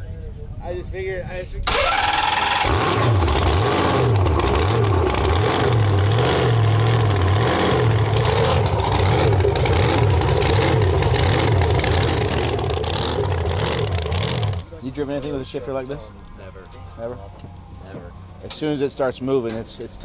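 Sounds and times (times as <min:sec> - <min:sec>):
truck engine revving: 0:01.7 - 0:14.7.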